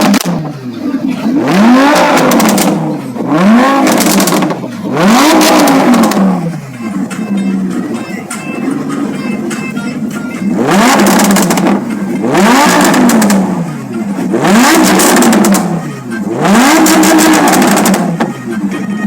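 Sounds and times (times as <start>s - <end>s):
exhaust crackles: 0.0s - 18.9s
car engine revving: 0.0s - 19.0s.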